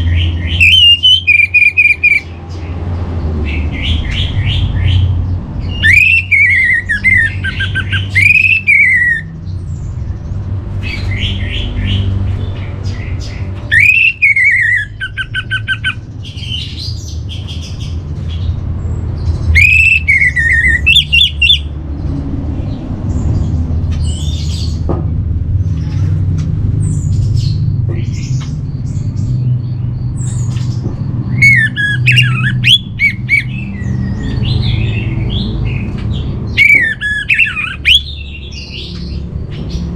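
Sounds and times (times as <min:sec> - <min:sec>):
bird chirps: 0:00.0 - 0:24.9, 0:26.8 - 0:39.9
thrush singing whistled phrases: 0:00.4 - 0:02.3, 0:05.7 - 0:09.3, 0:13.7 - 0:16.0, 0:19.5 - 0:21.7, 0:31.3 - 0:34.4, 0:36.6 - 0:38.3.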